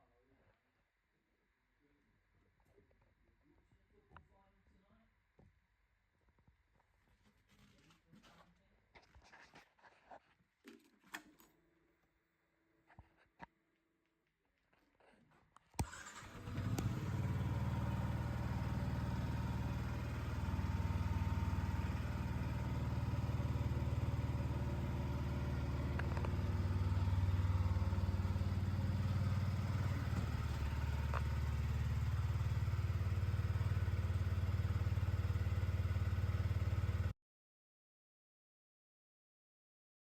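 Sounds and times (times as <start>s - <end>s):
motorcycle engine starting and idling: 15.8s - 37.1s.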